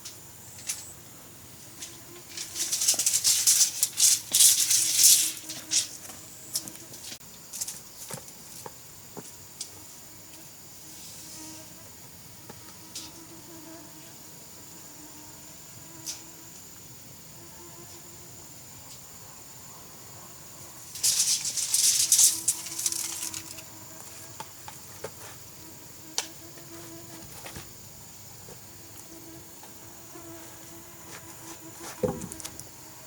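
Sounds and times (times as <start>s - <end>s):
dry rattling and clicking: 2.3s - 5.8s, 21.0s - 23.6s.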